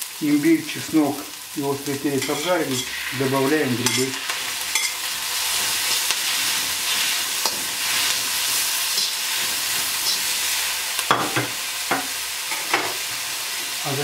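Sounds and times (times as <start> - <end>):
vegetables sizzling in hot oil: 0.0 - 14.0
spatula scraping pan: 2.2 - 3.2, 3.8 - 10.8.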